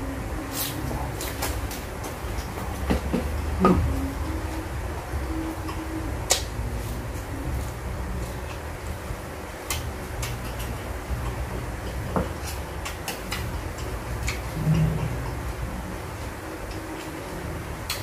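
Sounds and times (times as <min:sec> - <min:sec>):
low background rumble: 0:00.0 - 0:18.0
person chewing: 0:09.6 - 0:18.0.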